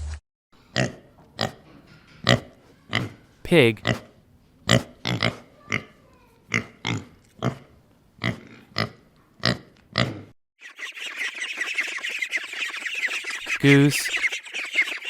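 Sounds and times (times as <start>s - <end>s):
pig grunting: 0.7s - 1.6s, 2.2s - 10.4s.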